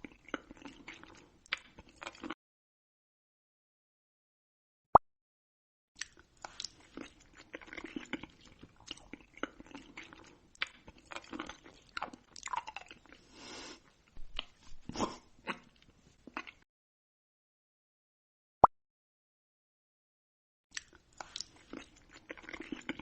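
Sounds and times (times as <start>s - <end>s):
crunchy food being chewed: 0.0s - 2.4s, 6.0s - 16.6s, 20.7s - 23.0s.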